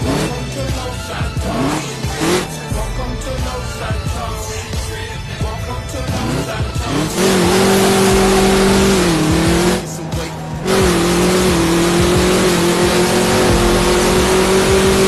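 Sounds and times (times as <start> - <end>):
engine at high revs: 0.0 - 2.8, 6.0 - 15.0.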